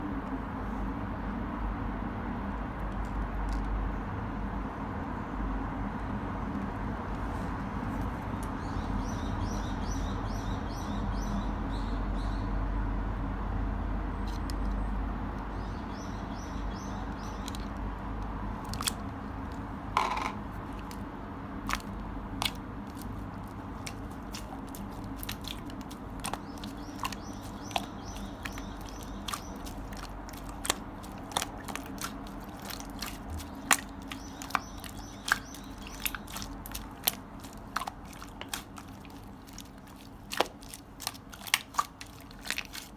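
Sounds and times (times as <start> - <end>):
slime clicking and popping: 18.7 - 19.0, 21.7 - 42.9.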